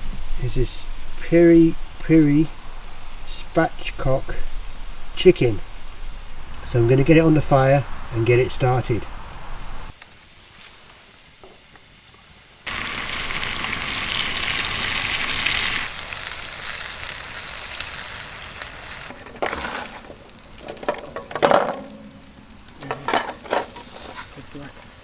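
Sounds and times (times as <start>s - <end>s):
chicken sizzling over a fire: 0.0s - 25.0s
metal clanks and knocks: 19.1s - 24.4s.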